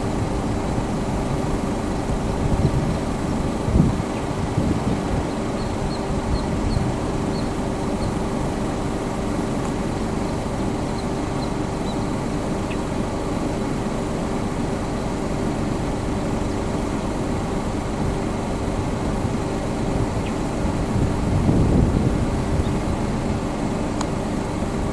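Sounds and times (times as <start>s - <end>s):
constant hum: 0.0s - 24.9s.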